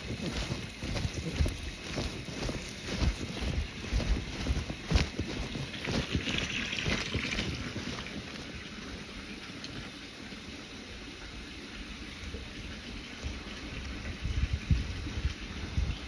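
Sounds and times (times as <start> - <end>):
footsteps: 0.0 - 8.6
wind buffeting microphone: 14.0 - 16.0.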